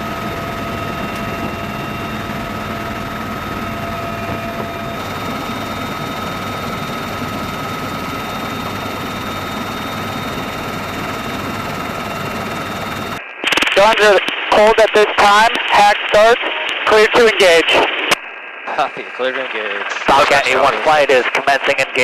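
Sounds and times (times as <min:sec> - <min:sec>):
high-pitched whines: 0:00.0 - 0:15.3
helicopter rotor and engine noise: 0:00.0 - 0:15.5, 0:18.7 - 0:22.0.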